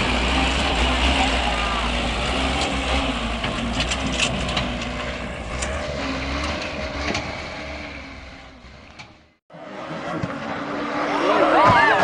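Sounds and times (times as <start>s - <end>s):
heavy vehicle rumbling: 0.0s - 12.0s
knocks and creaks: 2.3s - 9.4s.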